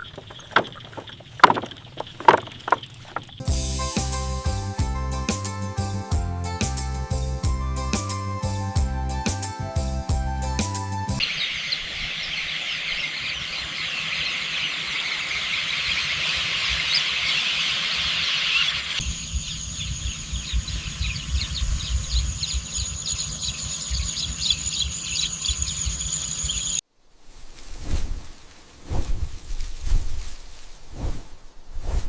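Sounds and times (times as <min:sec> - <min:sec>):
background music: 0:03.4 - 0:11.2
chorus of chirps and trills: 0:11.2 - 0:26.8.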